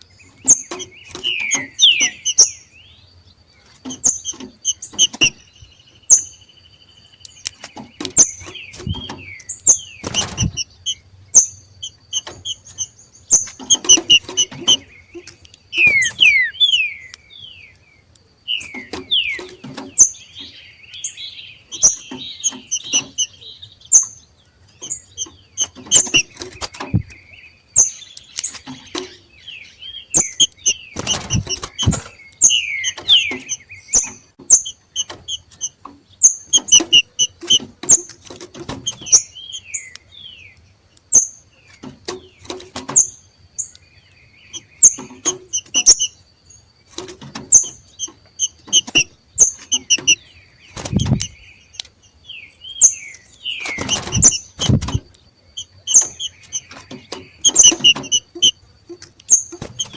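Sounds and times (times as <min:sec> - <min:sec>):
bird chirps and whistles: 0:00.5 - 0:02.6, 0:04.0 - 0:05.5, 0:08.8 - 0:14.9, 0:15.7 - 0:17.2, 0:18.6 - 0:20.1, 0:21.7 - 0:23.4, 0:24.8 - 0:27.1, 0:30.1 - 0:35.7, 0:36.6 - 0:37.6, 0:44.5 - 0:46.1, 0:48.4 - 0:50.2, 0:53.6 - 0:55.0, 0:55.6 - 0:58.6
thumps or knocks: 0:30.5 - 0:32.1, 0:53.8 - 0:55.1.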